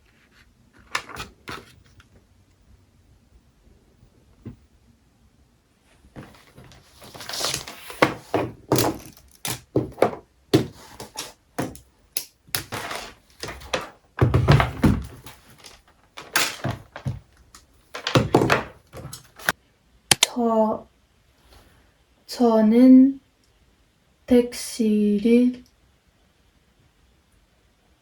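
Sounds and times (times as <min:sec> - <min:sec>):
rustling: 0:05.8 - 0:11.8, 0:12.6 - 0:19.6
knocks and thumps: 0:06.2 - 0:11.8, 0:12.6 - 0:17.4, 0:18.0 - 0:19.6.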